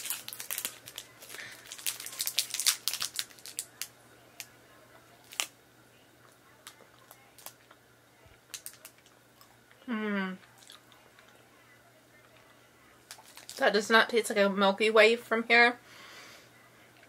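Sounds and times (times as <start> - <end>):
plastic wrapper crinkling and tearing: 0.0 - 4.5, 5.2 - 5.6, 6.6 - 7.6, 8.5 - 9.2, 13.1 - 13.6.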